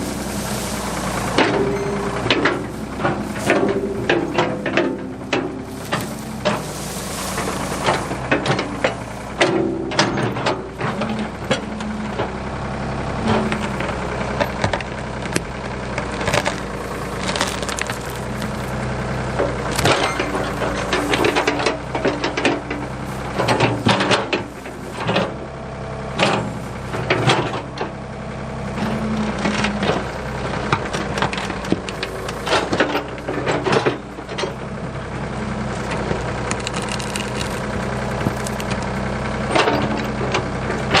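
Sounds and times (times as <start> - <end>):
backhoe engine running: 0.0 - 41.0
wood cracking and snapping: 13.5 - 24.3, 35.7 - 39.9.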